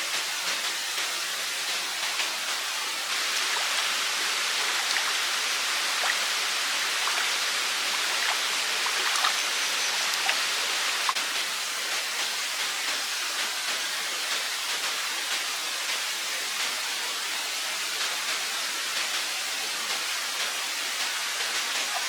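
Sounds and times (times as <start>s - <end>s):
water drips and plinks: 0.1s - 16.8s
stream water rushing: 1.3s - 11.9s.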